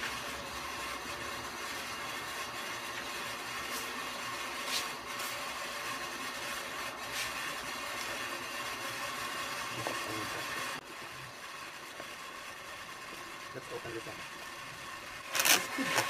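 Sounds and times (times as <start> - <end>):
packaging clicks and crinkles: 15.3 - 16.0.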